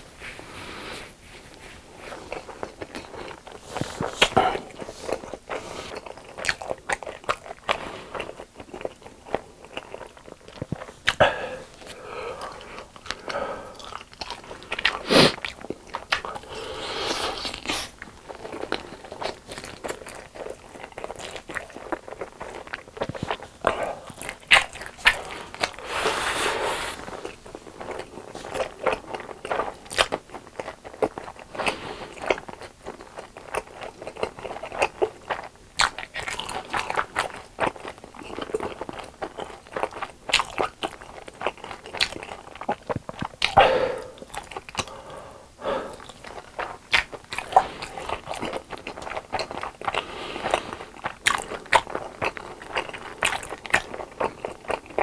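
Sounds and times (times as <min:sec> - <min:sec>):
crunchy chewing: 0:00.0 - 0:55.0.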